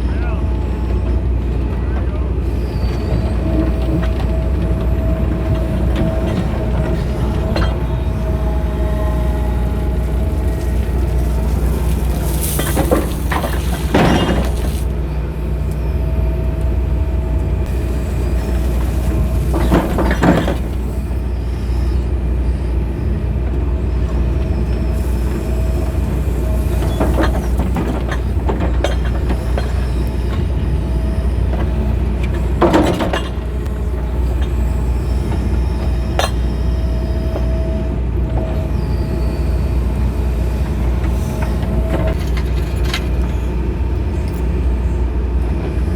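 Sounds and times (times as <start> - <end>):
excavator engine drone: 0.0 - 45.9
digging bucket clanks and scrapes: 5.8 - 15.0.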